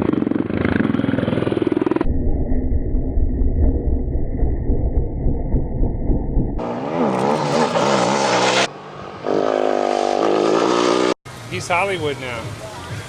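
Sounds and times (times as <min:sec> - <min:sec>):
motorcycle engine revving: 0:00.0 - 0:11.2
muffled engine rumble: 0:01.9 - 0:06.6.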